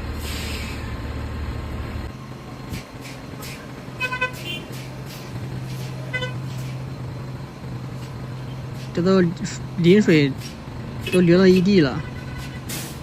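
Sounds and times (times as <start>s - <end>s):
heavy truck engine drone: 0.0s - 13.0s
vehicle horn toots: 4.0s - 4.7s, 6.1s - 6.4s, 11.0s - 12.7s.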